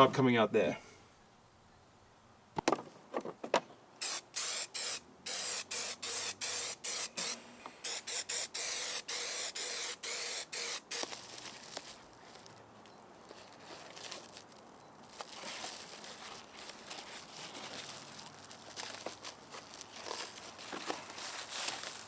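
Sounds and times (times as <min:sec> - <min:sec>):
aerosol spray bursts: 0:04.0 - 0:11.1.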